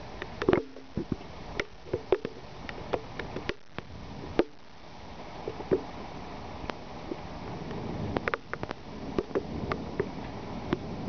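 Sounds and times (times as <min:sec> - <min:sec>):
rain hiss: 0:00.0 - 0:11.0
raindrops tapping on a surface: 0:00.3 - 0:04.6, 0:07.1 - 0:10.9.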